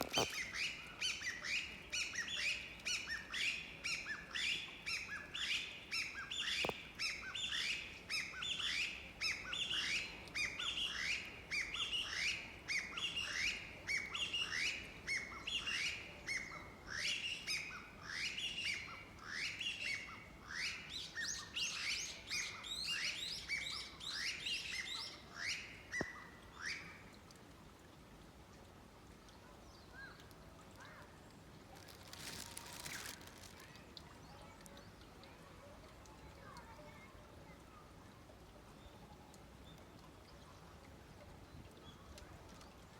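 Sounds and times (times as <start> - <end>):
small birds chirping: 29.8 - 35.5.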